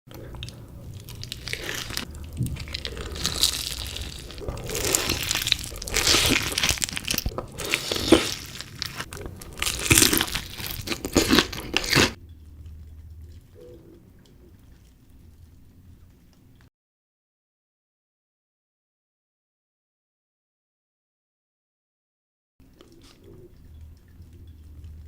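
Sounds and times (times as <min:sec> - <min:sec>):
crunching crispy chicken: 0:00.1 - 0:12.2.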